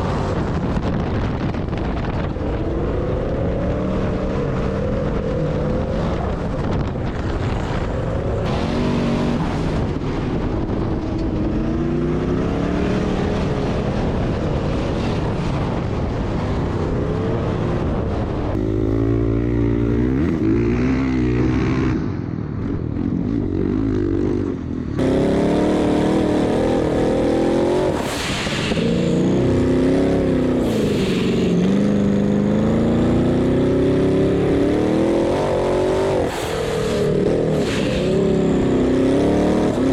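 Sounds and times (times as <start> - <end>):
off-road vehicle engine revving: 7.6 - 10.4, 18.5 - 22.0, 25.0 - 39.9.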